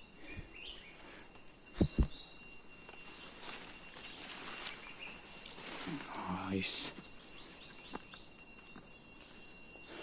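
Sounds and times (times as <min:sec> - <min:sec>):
bird chirping: 0:00.0 - 0:10.0
insects trilling: 0:00.0 - 0:10.0
low thuds: 0:01.8 - 0:02.2.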